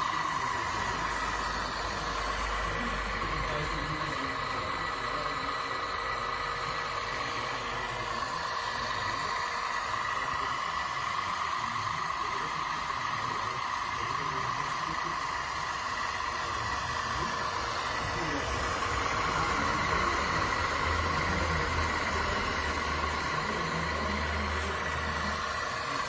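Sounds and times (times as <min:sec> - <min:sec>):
rc construction machine whine: 0:00.0 - 0:26.0.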